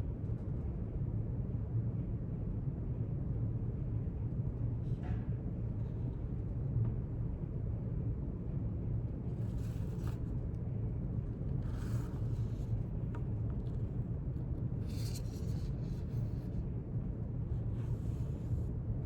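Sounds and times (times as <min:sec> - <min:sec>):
low room hum: 0:00.0 - 0:19.0
pen writing on paper: 0:11.6 - 0:13.9.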